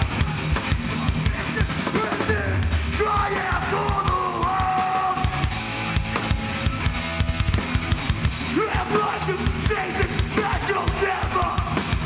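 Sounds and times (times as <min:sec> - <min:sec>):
heavy band playing: 0:00.0 - 0:12.0
singer yelling: 0:01.2 - 0:05.6, 0:08.4 - 0:12.0.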